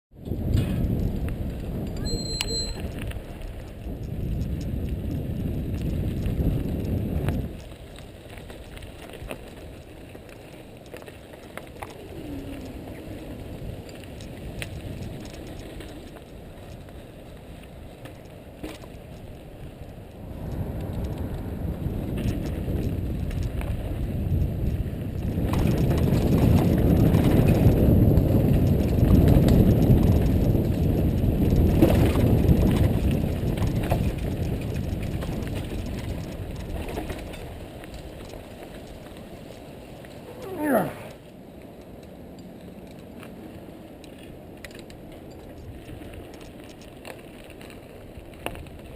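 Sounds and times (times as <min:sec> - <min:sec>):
wind on microphone: 0:00.2 - 0:08.3, 0:11.7 - 0:17.9, 0:19.1 - 0:39.5
bike tyres rumbling on dirt: 0:00.2 - 0:41.4, 0:42.2 - 0:48.9
bike rattling: 0:00.2 - 0:48.9.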